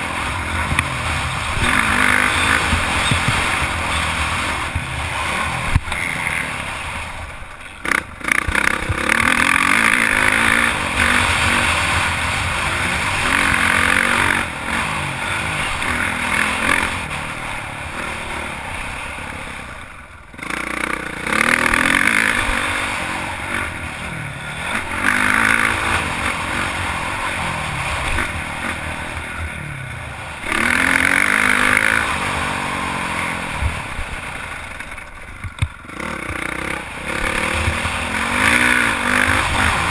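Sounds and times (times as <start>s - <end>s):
motorbike engine revving: 0.0s - 39.9s.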